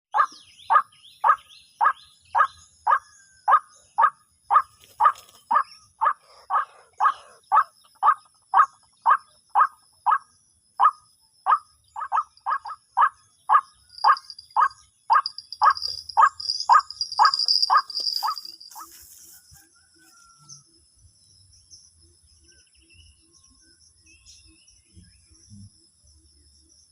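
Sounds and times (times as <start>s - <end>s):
insects buzzing: 4.0s - 20.5s
waterhen calling: 12.0s - 18.9s.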